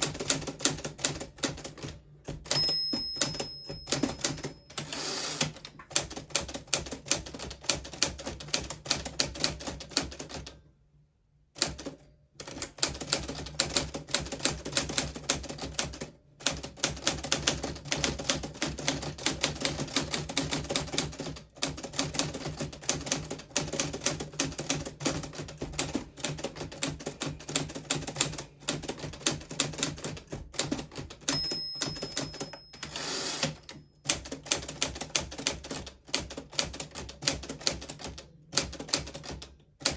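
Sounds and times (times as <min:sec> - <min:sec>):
typewriter keystroke clacks: 0:11.6 - 0:39.9.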